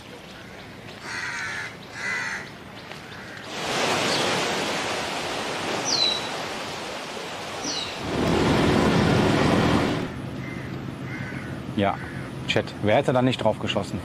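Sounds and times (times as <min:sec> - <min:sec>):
harsh caw-like bird calls: 0:00.3 - 0:03.5, 0:10.1 - 0:12.5
steady rushing noise: 0:03.5 - 0:10.4.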